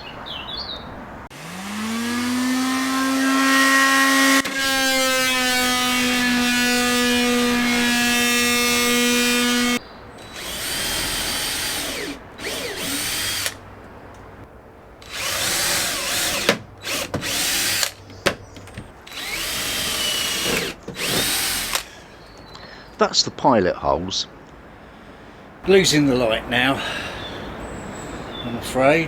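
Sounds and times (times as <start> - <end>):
power drill boring into wood: 1.3 - 13.6, 15.0 - 22.0.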